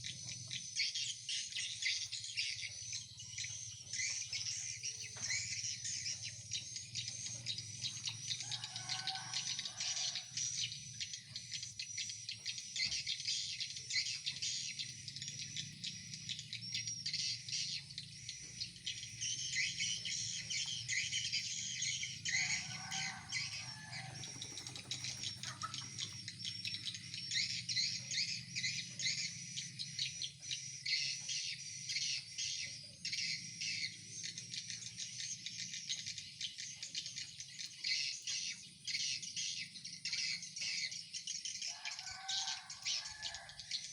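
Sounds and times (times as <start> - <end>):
swiftlets twittering: 14.8 - 28.1.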